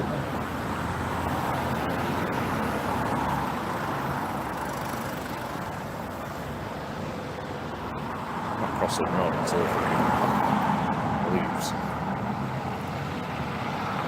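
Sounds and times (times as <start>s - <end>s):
car engine and tyres: 0.0s - 14.0s.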